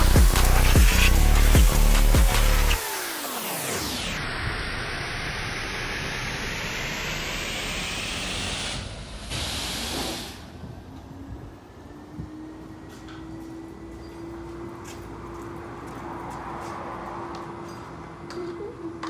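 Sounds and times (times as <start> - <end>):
car wash equipment hissing rush: 0.0 - 10.8.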